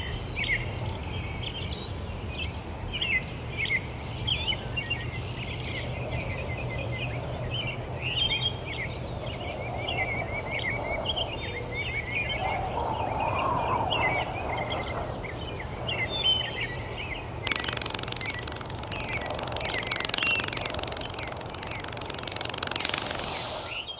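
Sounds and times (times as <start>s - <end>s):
small birds chirping: 14.0s - 23.9s
steady low hum: 17.3s - 23.9s
hiss of noise: 17.5s - 23.9s.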